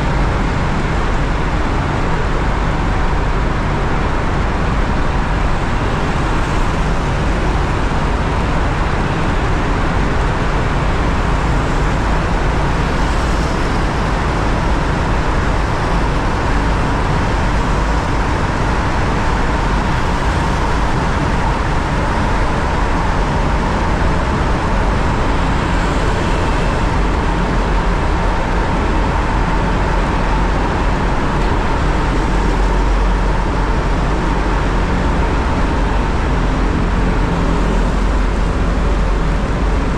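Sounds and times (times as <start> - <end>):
traffic noise in tunnel: 0.0 - 39.9
motorcycle engine: 30.4 - 39.9.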